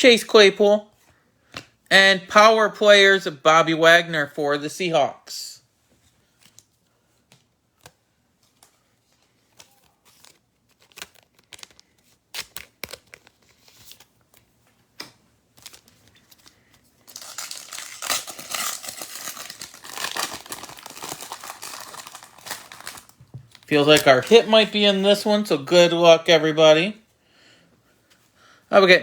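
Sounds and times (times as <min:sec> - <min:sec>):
foil wrapper crinkling: 0:09.5 - 0:14.1, 0:15.5 - 0:24.8.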